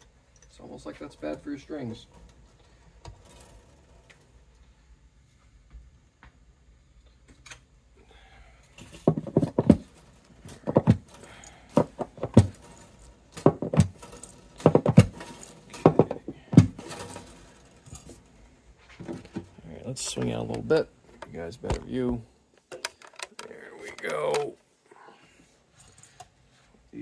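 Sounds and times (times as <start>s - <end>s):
guitar strings rattling against guitar: 9.0s - 18.3s.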